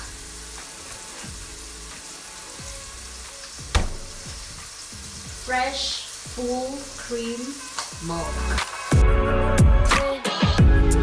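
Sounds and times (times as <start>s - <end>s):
mushrooms sizzling in a pot: 0.0s - 9.1s
utensil knocking on pan: 3.6s - 5.3s.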